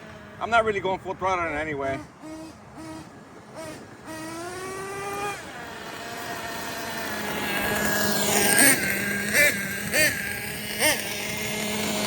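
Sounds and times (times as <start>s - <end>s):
nitro engine revving with whine: 0.0s - 12.0s.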